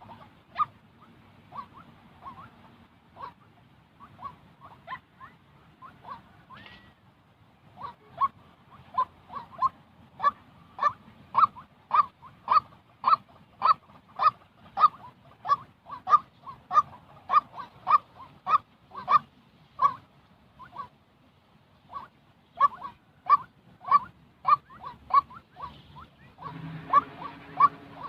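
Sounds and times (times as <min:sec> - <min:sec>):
bird honking calls: 0:07.8 - 0:21.0, 0:21.9 - 0:28.0.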